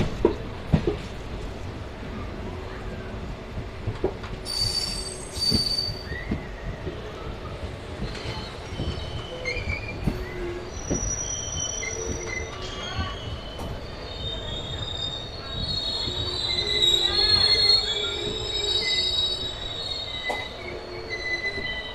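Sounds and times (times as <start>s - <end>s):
train knocks: 0.0s - 1.4s, 3.5s - 7.1s, 7.9s - 11.2s, 15.5s - 21.9s
low train rumble: 0.0s - 21.9s
train wheels squealing: 4.4s - 21.9s.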